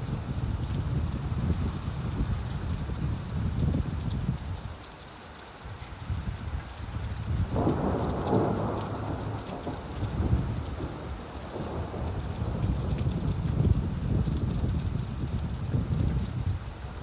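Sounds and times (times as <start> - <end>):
steady rainfall: 0.0 - 17.0
thunder rumble: 7.2 - 17.0.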